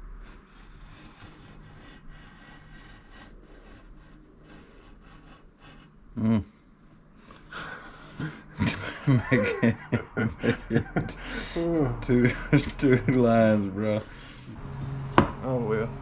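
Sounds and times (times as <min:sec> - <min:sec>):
scribe scratching steel pipe: 0:00.0 - 0:05.9, 0:12.6 - 0:15.2.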